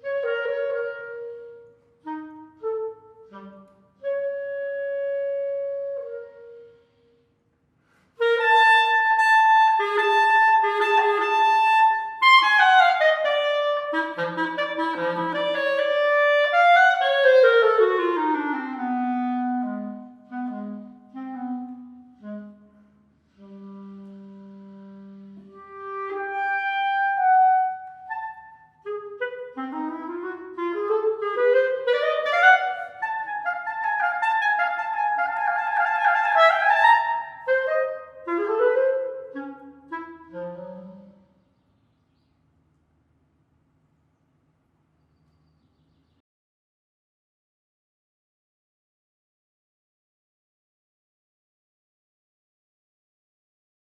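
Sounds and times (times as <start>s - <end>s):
solo clarinet playing: 0.0s - 7.3s, 8.2s - 41.4s.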